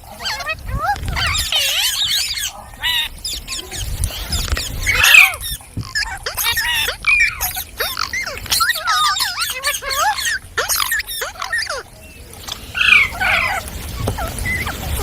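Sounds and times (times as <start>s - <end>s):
parrots chattering and squawking: 0.0s - 15.0s
parrot harsh screech: 0.2s - 11.9s.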